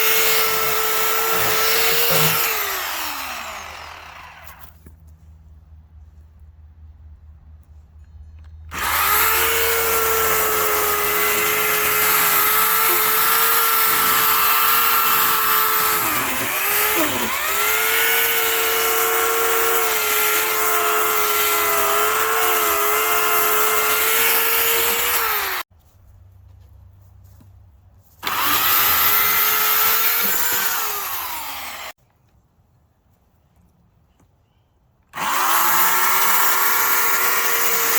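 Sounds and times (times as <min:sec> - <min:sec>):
electric chainsaw whining: 0:00.0 - 0:04.8, 0:08.7 - 0:25.7, 0:28.2 - 0:32.0, 0:35.2 - 0:37.9.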